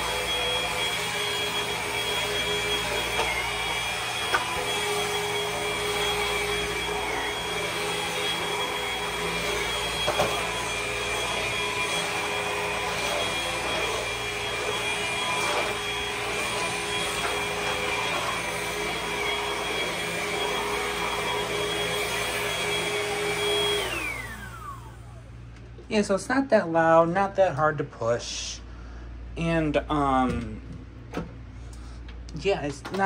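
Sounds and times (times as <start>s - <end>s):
stick vacuum running on a rug: 0.0s - 25.1s.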